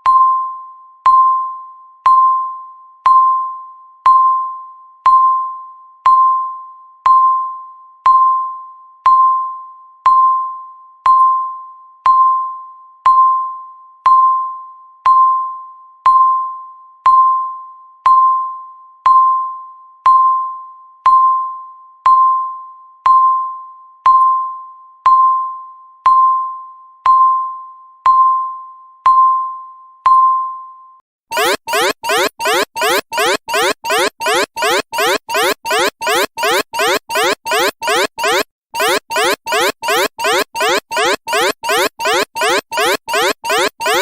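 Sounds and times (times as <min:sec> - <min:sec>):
countdown timer beeping: 0:31.3 - 0:44.0.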